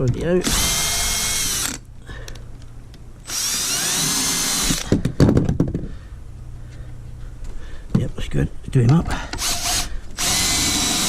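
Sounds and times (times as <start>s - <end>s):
cordless drill motor whine: 0.4s - 1.8s, 3.3s - 4.9s, 9.4s - 11.0s
drill clutch clicking: 0.4s - 1.8s, 9.3s - 11.0s.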